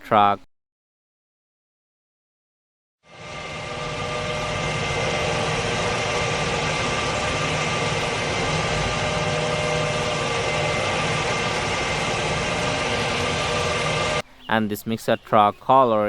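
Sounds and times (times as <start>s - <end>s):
toy truck motor humming: 3.1s - 14.2s
constant whining tones: 3.1s - 14.4s.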